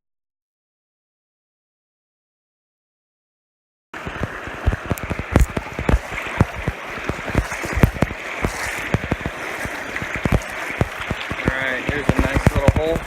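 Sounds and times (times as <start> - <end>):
creek rushing: 4.0 - 13.0
dull knocks and bumps: 4.6 - 13.0.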